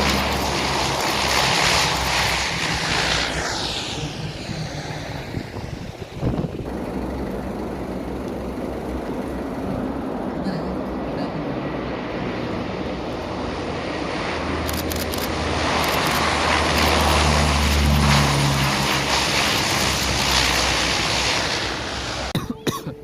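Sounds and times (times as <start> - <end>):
aircraft flying past: 0.0 - 22.4
sharp clicks: 14.6 - 17.2.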